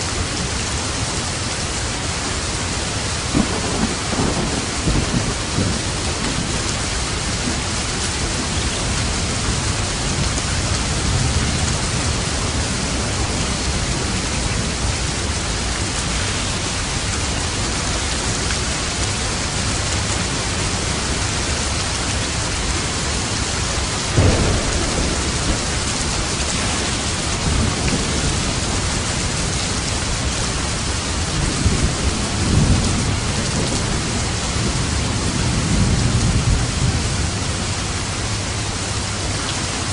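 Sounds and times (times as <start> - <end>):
steady rain falling: 0.0 - 39.9
low rumble of thunder: 3.2 - 38.8.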